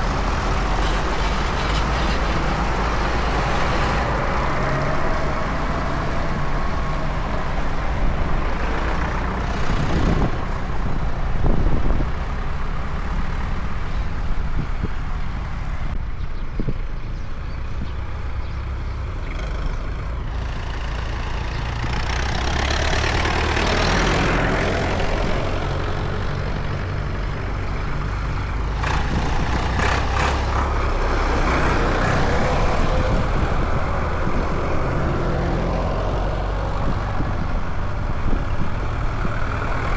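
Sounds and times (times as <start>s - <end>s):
tractor engines running: 0.0s - 39.9s.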